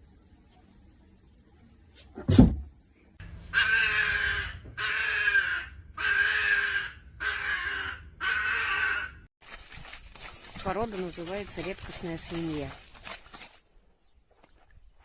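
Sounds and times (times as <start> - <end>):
animal harsh calls: 3.2 - 9.3.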